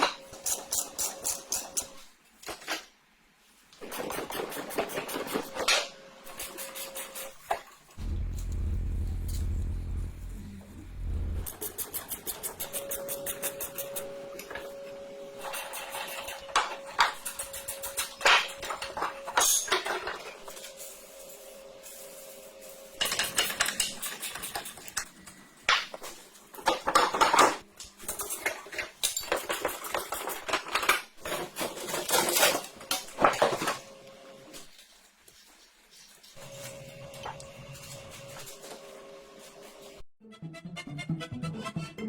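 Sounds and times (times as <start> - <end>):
metal tools clinking and scraping: 15.5 - 20.8.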